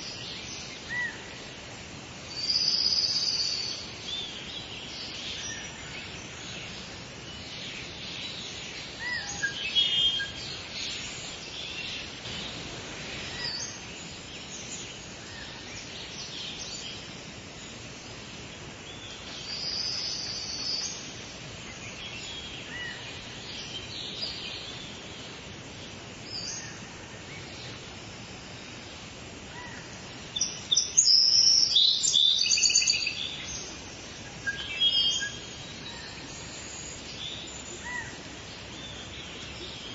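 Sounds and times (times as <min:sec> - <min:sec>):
background hiss: 0:00.0 - 0:39.9
birds chirping and singing: 0:02.3 - 0:17.8, 0:29.6 - 0:39.9.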